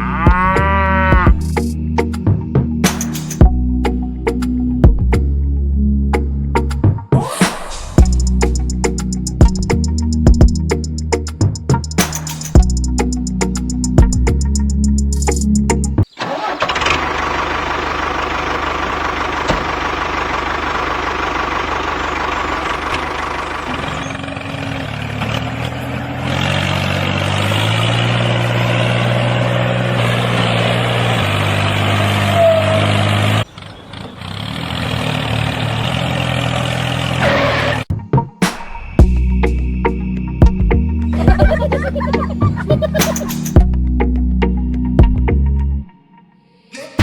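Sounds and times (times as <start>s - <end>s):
engine running: 7.6s - 37.9s, 40.8s - 44.2s.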